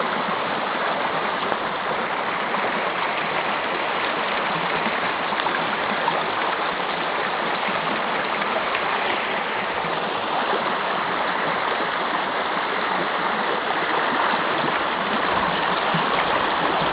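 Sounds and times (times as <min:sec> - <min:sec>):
river water rushing: 0:00.0 - 0:16.9.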